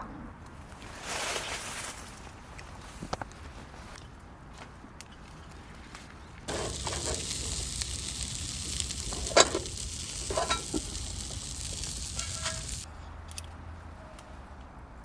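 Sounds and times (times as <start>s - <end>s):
ribs sizzling in a pan: 6.5s - 12.9s
sharp pops and clinks: 6.5s - 12.9s.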